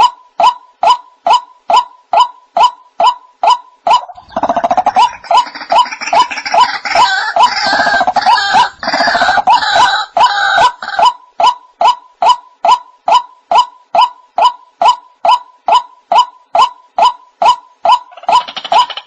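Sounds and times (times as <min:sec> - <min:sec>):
harsh bird calls: 0:03.4 - 0:11.2.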